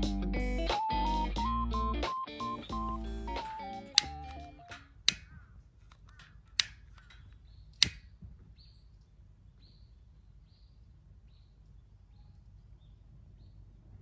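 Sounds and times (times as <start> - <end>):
faint clicks: 2.8 - 8.1.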